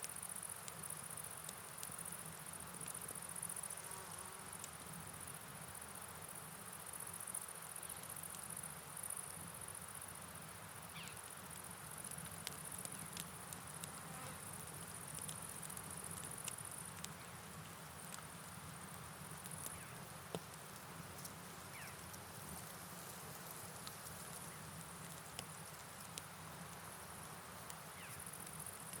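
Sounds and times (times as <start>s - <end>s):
night insects trilling: 0.0s - 29.0s
steady rain: 4.9s - 29.0s
light ticks: 11.0s - 14.0s, 15.0s - 17.3s, 18.0s - 18.3s, 23.4s - 26.8s.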